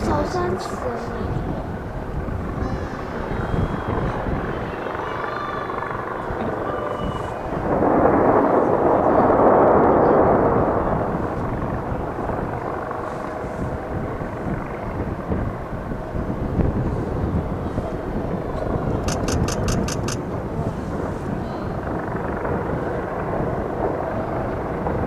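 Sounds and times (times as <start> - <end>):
fireworks booming and rumbling: 6.2 - 13.0.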